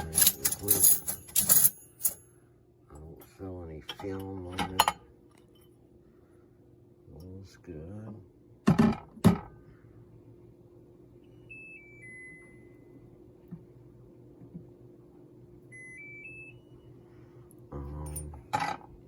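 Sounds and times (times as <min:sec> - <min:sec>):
silverware clinking: 0:00.0 - 0:02.2
faint steady hum: 0:00.0 - 0:19.0.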